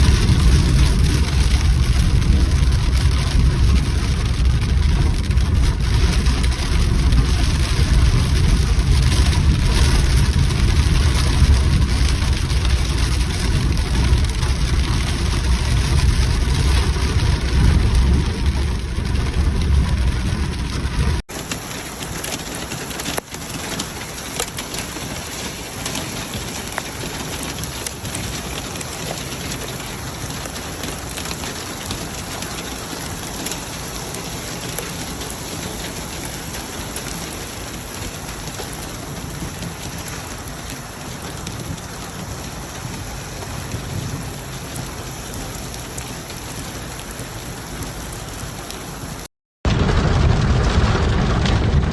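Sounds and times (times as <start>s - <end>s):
heavy rain: 0.0s - 51.9s.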